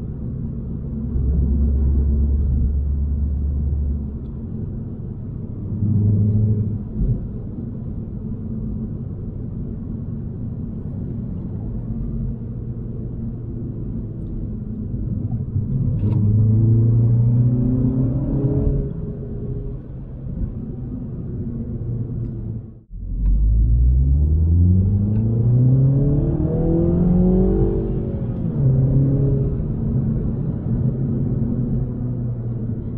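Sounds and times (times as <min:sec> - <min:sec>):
road noise: 0:00.0 - 0:32.9
car engine accelerating: 0:11.0 - 0:32.9.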